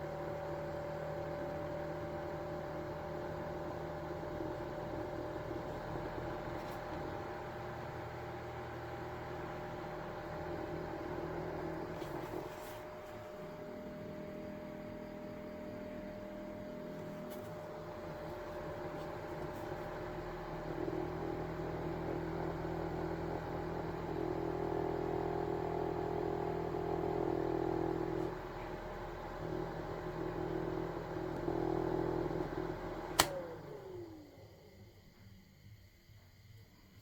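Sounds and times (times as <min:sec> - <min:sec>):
small fan motors whirring: 0:00.0 - 0:35.8
switch click: 0:33.1 - 0:33.5.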